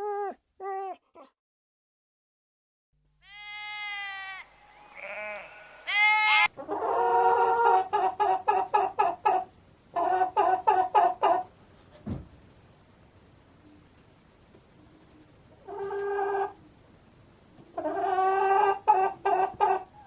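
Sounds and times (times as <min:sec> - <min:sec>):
farm animals bleating: 0:03.2 - 0:06.5.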